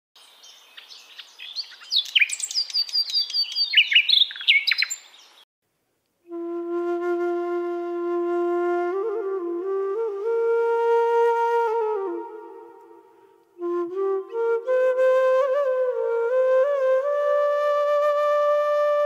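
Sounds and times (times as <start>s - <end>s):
birds chirping and singing: 0.2s - 5.4s
flute holding a long note: 6.3s - 19.0s.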